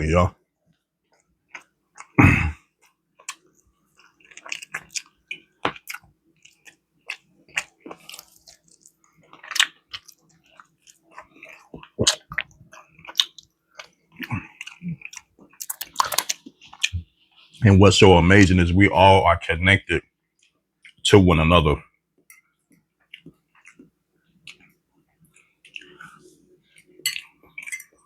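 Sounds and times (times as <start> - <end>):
mouth chewing food: 0.7 - 17.6, 22.7 - 28.0.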